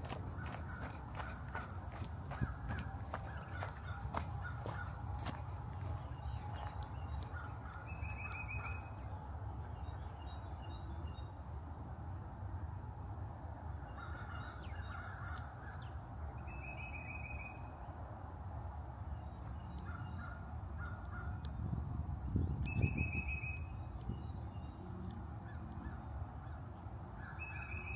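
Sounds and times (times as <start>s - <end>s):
birds honking calls: 0.0s - 8.1s.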